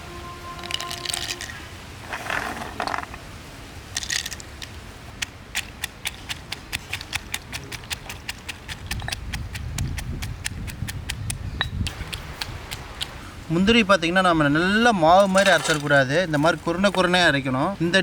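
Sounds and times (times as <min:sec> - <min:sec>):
cashews being crushed: 0:04.0 - 0:04.8.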